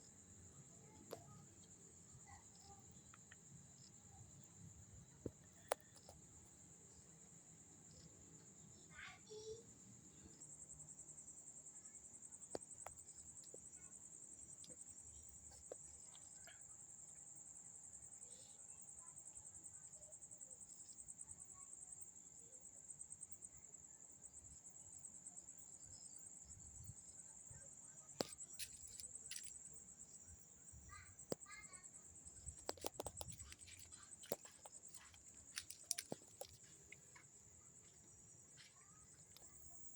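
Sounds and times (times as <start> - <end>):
crickets chirring: 0.0 - 39.9
faint clicks: 2.5 - 4.5, 5.2 - 6.3, 28.1 - 29.8, 30.9 - 37.3.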